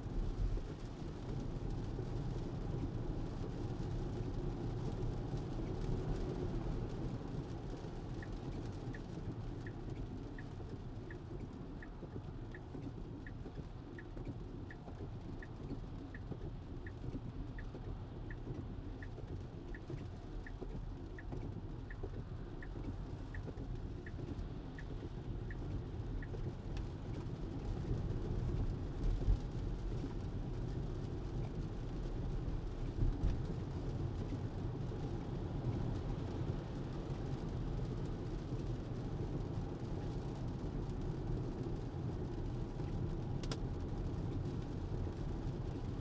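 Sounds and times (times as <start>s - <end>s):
road and tyre noise: 0.0s - 46.0s
turn signal ticking: 8.0s - 30.8s.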